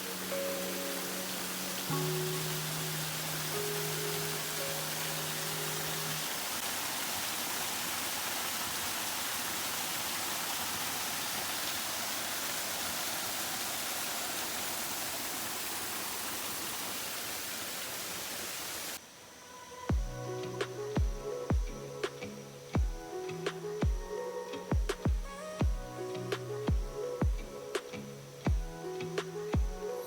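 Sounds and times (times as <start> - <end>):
background music: 0.0 - 6.6, 19.6 - 30.0
water rushing: 0.0 - 19.1.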